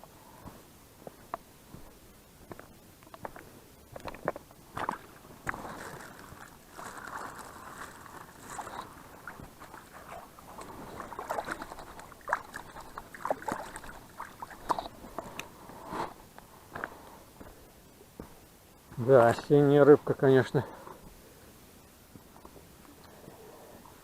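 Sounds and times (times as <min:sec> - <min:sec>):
water sloshing and splashing: 0:04.7 - 0:15.4.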